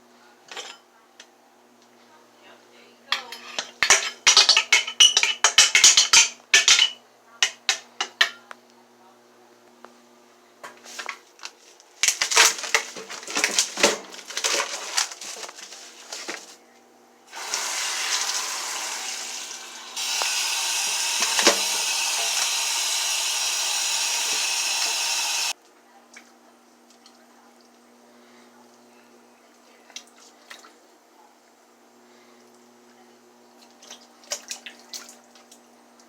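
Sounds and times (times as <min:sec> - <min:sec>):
kitchenware clattering: 0:00.5 - 0:00.9, 0:03.1 - 0:08.4.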